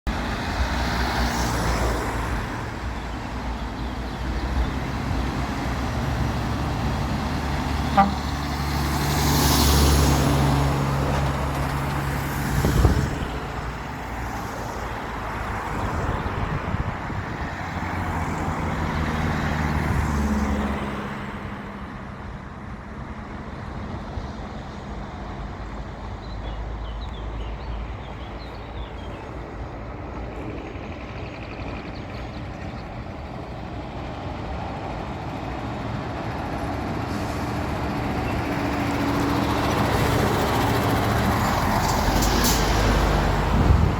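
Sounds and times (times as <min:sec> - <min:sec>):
diesel truck engines passing: 0:00.1 - 0:43.9
truck horn toot: 0:07.8 - 0:08.6.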